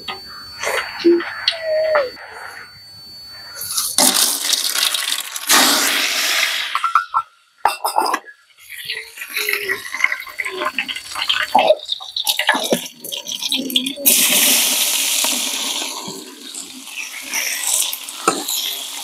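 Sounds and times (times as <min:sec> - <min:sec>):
spices crackling in hot oil: 0:03.8 - 0:06.7, 0:08.6 - 0:19.0
onions sizzling in oil: 0:10.1 - 0:19.0.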